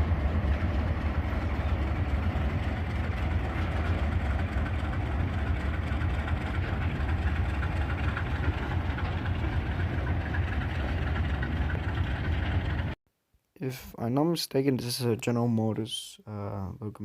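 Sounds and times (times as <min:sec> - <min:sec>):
diesel locomotive engine idling: 0:00.0 - 0:13.0.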